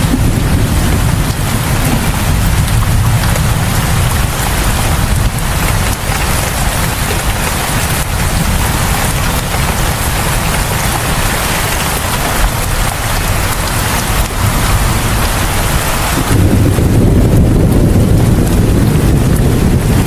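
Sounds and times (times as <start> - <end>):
heavy rain pattering: 0.0 - 20.0
low rumble: 0.0 - 20.0.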